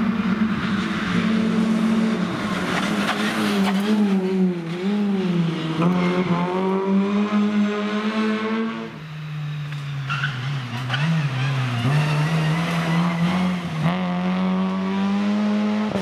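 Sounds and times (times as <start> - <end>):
rally car engine revving: 0.0 - 16.0
tyre squeal: 9.0 - 13.8.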